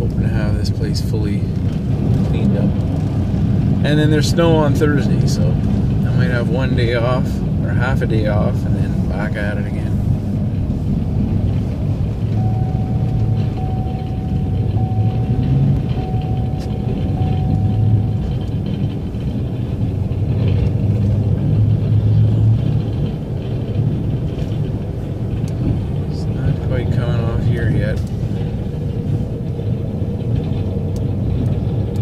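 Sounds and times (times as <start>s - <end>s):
truck engine low rumble: 0.0s - 32.0s
faint high steady tone: 12.3s - 18.9s.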